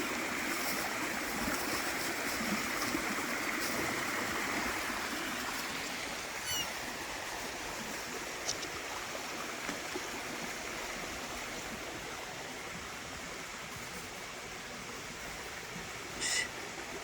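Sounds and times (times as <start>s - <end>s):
stream water rushing: 0.0s - 17.0s
descending bird call: 6.4s - 6.8s, 16.2s - 16.5s.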